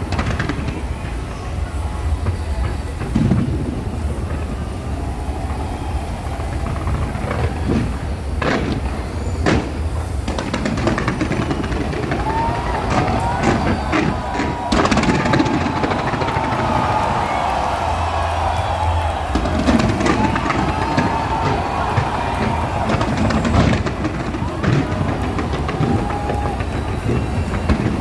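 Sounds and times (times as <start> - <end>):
fireworks rumbling bursts: 0.0 - 28.0
sharp fireworks bangs: 0.0 - 28.0.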